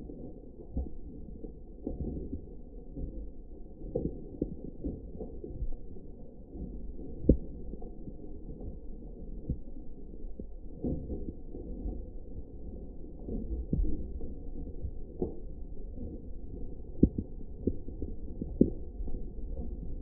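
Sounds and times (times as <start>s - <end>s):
raindrops knocking near microphone: 13.2s - 20.0s.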